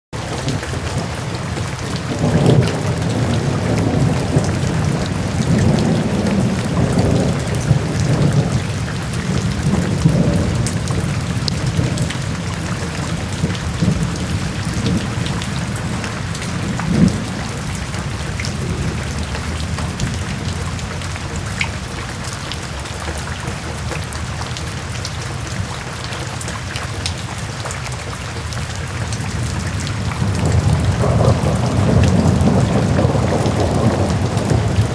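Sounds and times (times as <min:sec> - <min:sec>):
heavy rain: 0:00.1 - 0:34.9
rolling thunder: 0:00.4 - 0:22.0, 0:29.1 - 0:34.9
sharp thunderclap: 0:01.7 - 0:20.8, 0:29.3 - 0:34.9.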